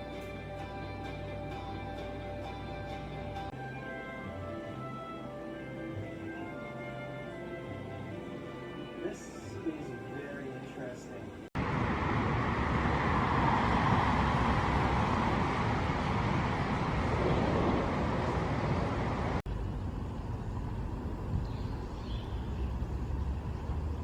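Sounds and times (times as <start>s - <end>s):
steady rushing noise: 11.6s - 24.0s.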